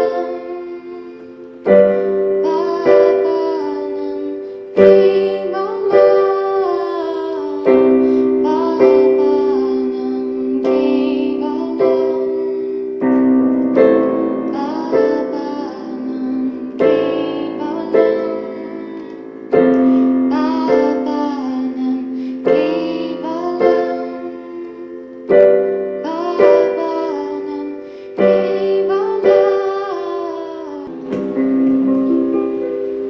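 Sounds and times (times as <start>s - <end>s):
slow gentle piano chords: 0.0s - 33.0s.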